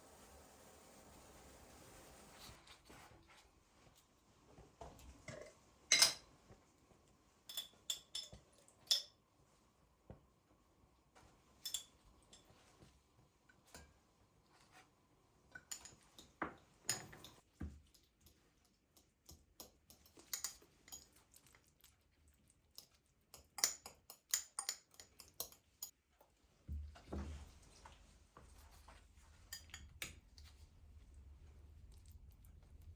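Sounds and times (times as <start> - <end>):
kitchen items clicking and tapping: 15.5 - 17.4, 23.3 - 26.0.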